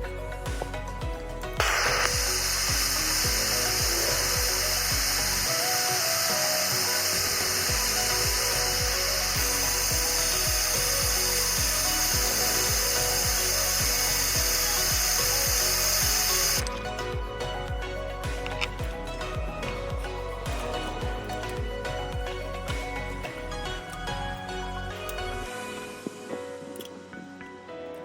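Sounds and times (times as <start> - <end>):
background music with beat: 0.0 - 28.0
power tool running with hiss: 1.6 - 16.7.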